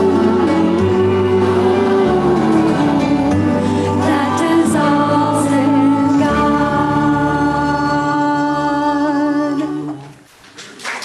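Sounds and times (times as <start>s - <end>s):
choir singing with accompaniment: 0.0s - 10.2s.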